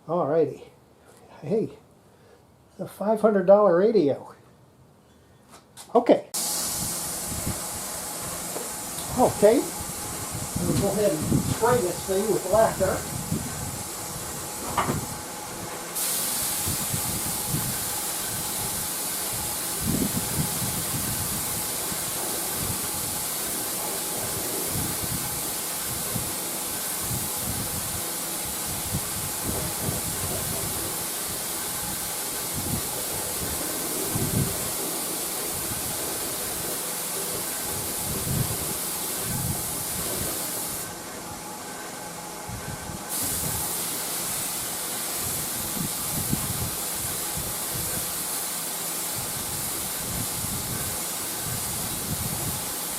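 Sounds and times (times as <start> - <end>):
spray hissing: 6.4 - 41.1, 43.1 - 52.9.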